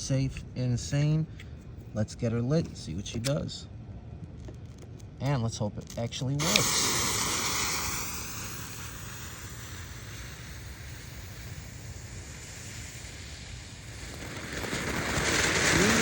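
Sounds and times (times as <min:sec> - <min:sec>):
firework fountain spraying: 0:06.4 - 0:16.0
fireworks fuse hissing: 0:06.4 - 0:16.0.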